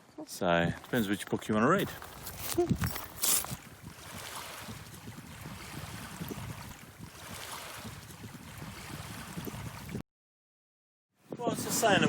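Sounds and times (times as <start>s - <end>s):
water washing: 0.5s - 10.0s
wind on microphone: 1.8s - 10.0s.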